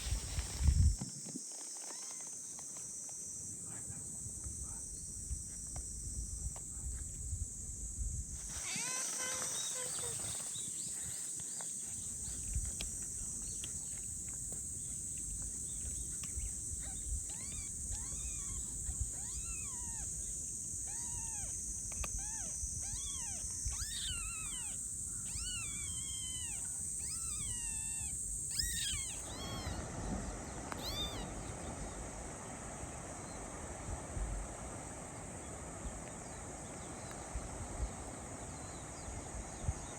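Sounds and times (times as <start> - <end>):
high insect trill: 0.0 - 39.9
kitten mewing: 22.2 - 29.9, 30.8 - 31.4.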